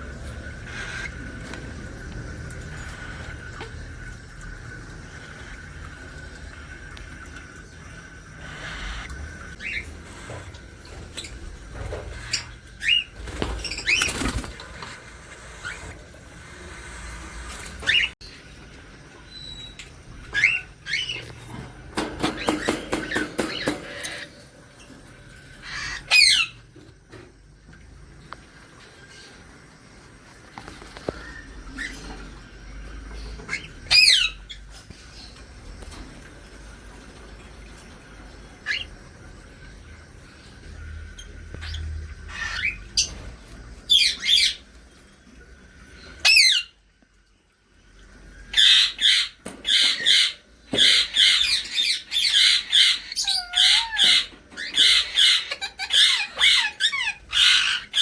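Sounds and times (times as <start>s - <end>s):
parrots chirping: 0.0s - 4.0s, 8.0s - 18.2s, 19.3s - 26.7s, 33.1s - 35.4s, 41.2s - 43.2s, 48.5s - 58.0s
parrot squawking: 48.5s - 58.0s.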